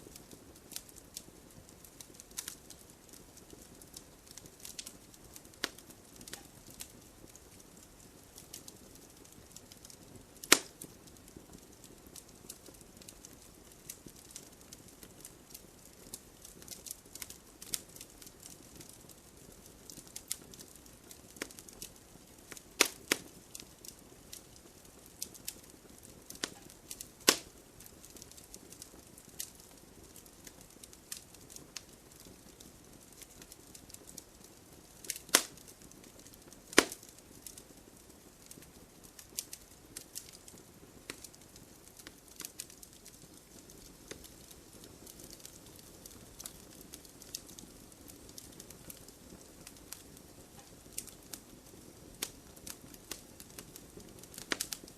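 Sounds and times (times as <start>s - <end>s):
log fire crackling: 0.0s - 54.9s
logs popping: 35.0s - 35.6s, 36.7s - 37.6s.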